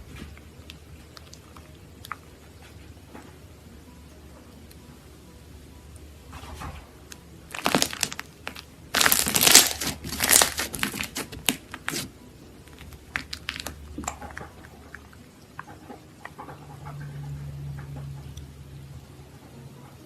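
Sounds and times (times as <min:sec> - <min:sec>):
slime crackling and popping: 0:07.1 - 0:14.5.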